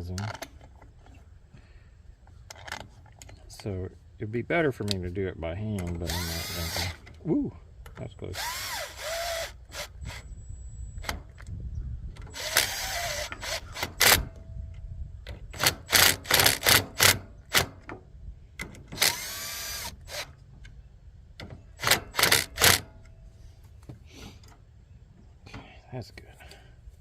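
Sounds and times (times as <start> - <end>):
power drill driving screws: 6.0 - 7.1, 8.3 - 10.2, 12.3 - 14.3, 15.5 - 17.8, 18.8 - 20.3, 21.8 - 22.9.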